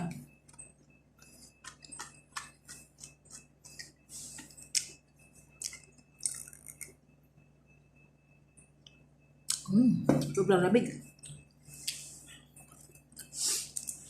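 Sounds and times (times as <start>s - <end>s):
chewing crunchy food: 1.2s - 7.0s.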